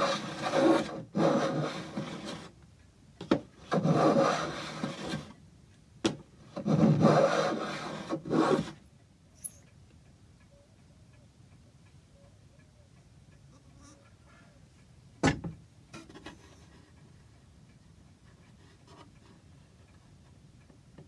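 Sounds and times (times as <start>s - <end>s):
hand tool scraping wood: 0.0s - 2.5s, 3.6s - 5.4s, 6.6s - 8.8s.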